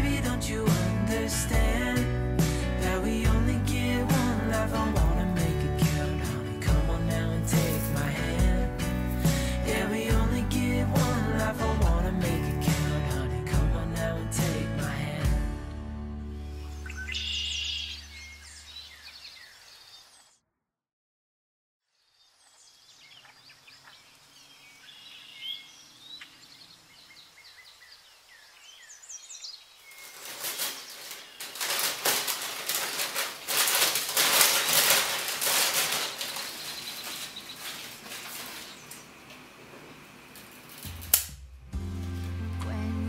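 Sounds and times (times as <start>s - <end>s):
birds chirping: 16.4s - 20.3s, 22.2s - 31.6s, 36.0s - 40.2s
paper crinkling and rustling: 29.8s - 41.1s.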